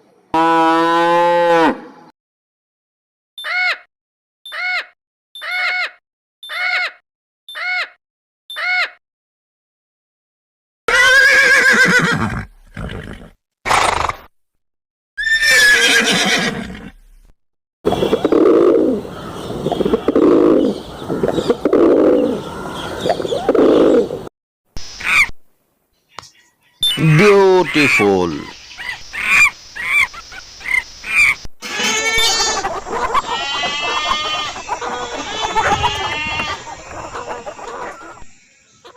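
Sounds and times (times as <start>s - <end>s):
horse whinnying: 10.9s - 14.3s, 15.2s - 17.0s, 33.3s - 36.6s
horse snort: 12.1s - 14.3s
lower animal sound: 17.9s - 24.3s
goats bleating: 31.6s - 38.2s.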